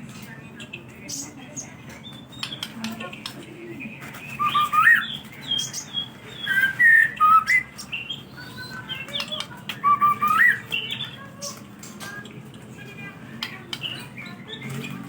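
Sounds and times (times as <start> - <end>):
bird singing whistled phrases: 4.3 - 7.8, 8.4 - 10.9.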